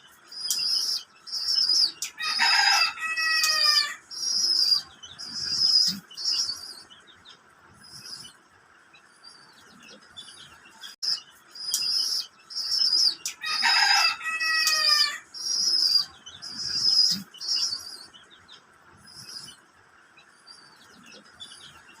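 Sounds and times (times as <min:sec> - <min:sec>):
pigeon squab squeaking: 0:11.0 - 0:17.9.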